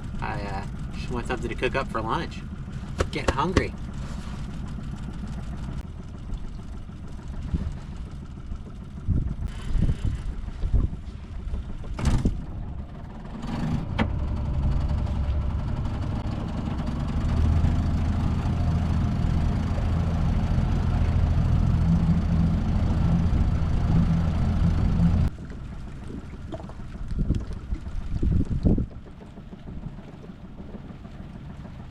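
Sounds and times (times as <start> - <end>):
outboard motor running: 0.0 - 31.9
sharp knocks: 2.9 - 3.8.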